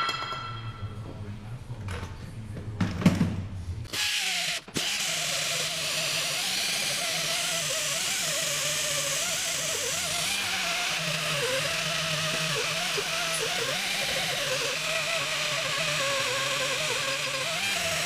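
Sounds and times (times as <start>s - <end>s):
electric drill running: 3.9s - 18.0s.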